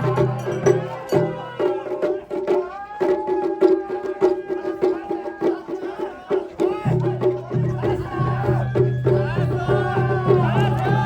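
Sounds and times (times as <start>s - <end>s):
sharp percussion strikes: 0.0s - 2.7s.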